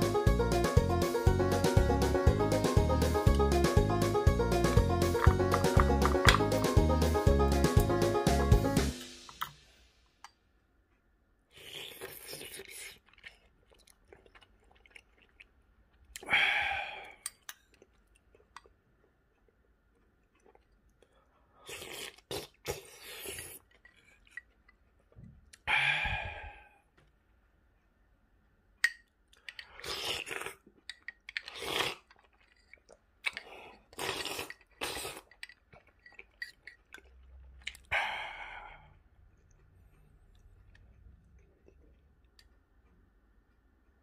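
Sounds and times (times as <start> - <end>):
chewing and mouth noises: 11.5 - 16.3, 17.0 - 25.7, 29.3 - 37.9, 39.2 - 42.5.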